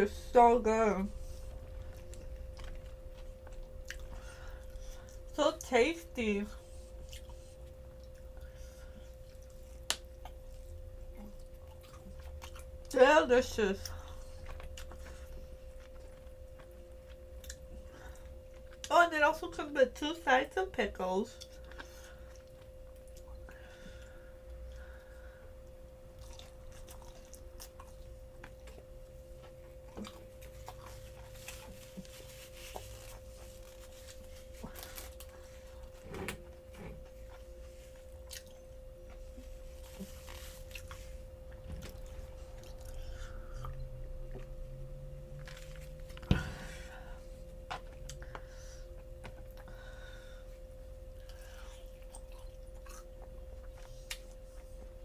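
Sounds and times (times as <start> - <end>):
faint steady hum: 0.0 - 55.0
chewing and biting: 1.5 - 5.3, 6.9 - 12.9, 13.8 - 18.9, 25.6 - 39.2, 39.8 - 44.6, 51.1 - 55.0.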